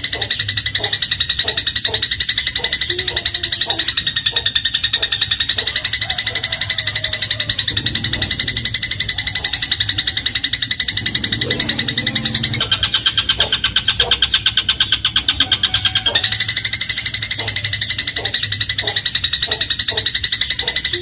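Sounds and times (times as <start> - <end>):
sparrow rattling chirps: 0.0 - 21.0.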